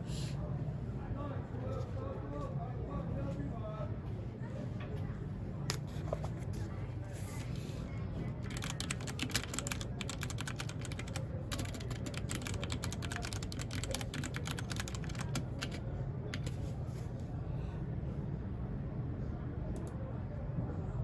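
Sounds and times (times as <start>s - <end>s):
mechanical keyboard typing: 8.4s - 16.6s.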